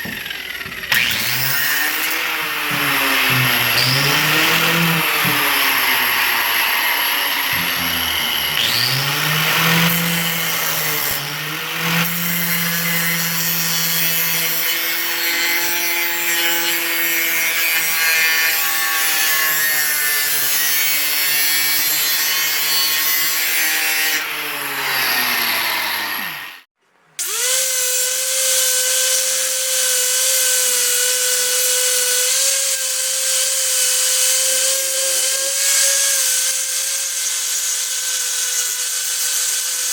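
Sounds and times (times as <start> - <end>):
power tool running steadily: 0.0 - 15.9, 24.3 - 39.9
power tool cutting metal: 0.0 - 39.9.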